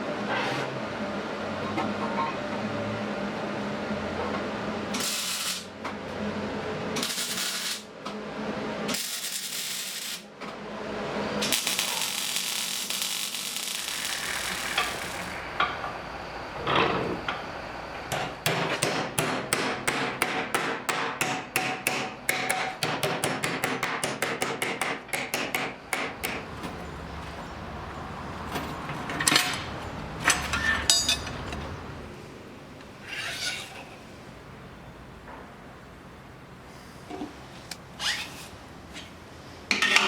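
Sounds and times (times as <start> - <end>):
hammer striking: 18.1 - 26.5.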